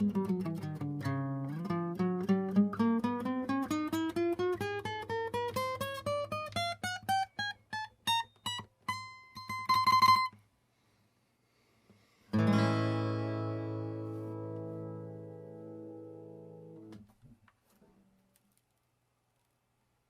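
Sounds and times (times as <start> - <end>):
acoustic guitar plucked notes: 0.0 - 10.4, 12.3 - 17.0
guitar chord ringing: 12.4 - 17.0.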